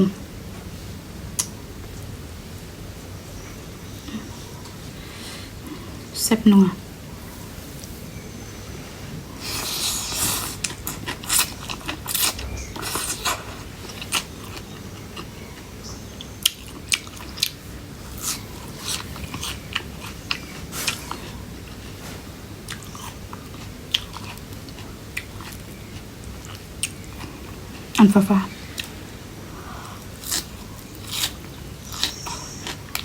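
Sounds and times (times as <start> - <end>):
crunchy biting and chewing: 9.4 - 28.0, 29.8 - 33.0.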